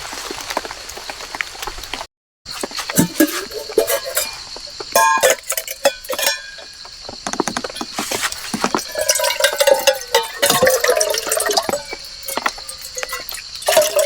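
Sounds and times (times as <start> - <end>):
metal cookware clinking: 2.8 - 6.9, 7.8 - 14.0.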